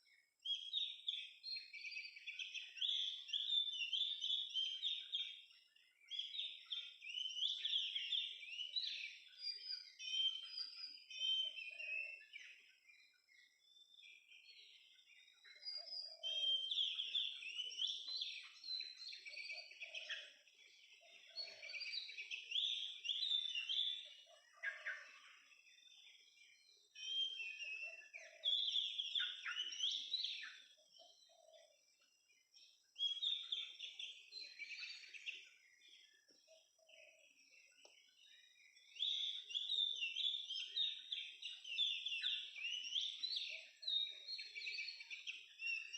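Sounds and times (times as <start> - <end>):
bird singing whistled phrases: 26.9 - 31.3, 33.0 - 35.6, 38.4 - 45.9.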